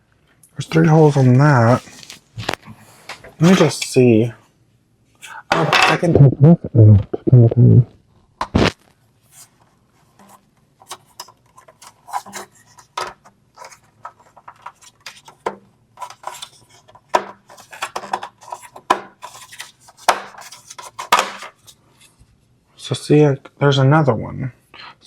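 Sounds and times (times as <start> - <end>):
parts rubbing and scraping: 0.6 - 4.0, 9.3 - 22.2
plastic parts clicking and tapping: 10.8 - 21.8.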